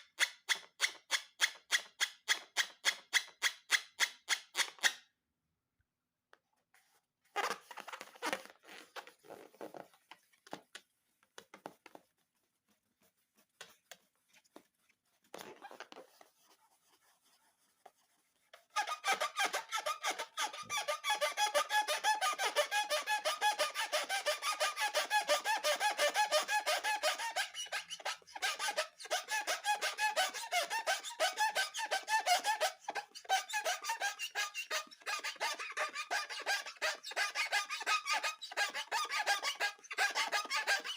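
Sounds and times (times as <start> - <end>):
rubbery squeaks of squeezed slime: 7.3 - 10.8, 15.2 - 17.8, 18.5 - 40.9.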